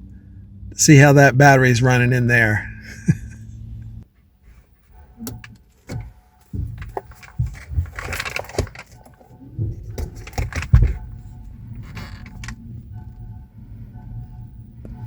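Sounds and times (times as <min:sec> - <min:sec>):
low steady hum: 0:00.0 - 0:15.0
sharp clicks and knocks: 0:04.9 - 0:13.2
heavy thump: 0:05.3 - 0:08.8, 0:09.6 - 0:12.6.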